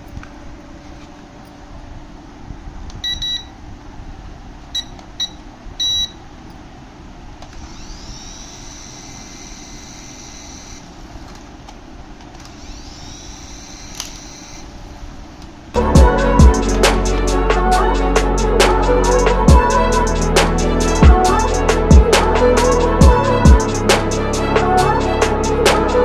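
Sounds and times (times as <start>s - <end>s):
short electronic beeps: 3.0s - 3.5s, 4.8s - 6.2s
high electronic whine rising: 15.8s - 26.0s
low motor rumble: 15.8s - 26.0s.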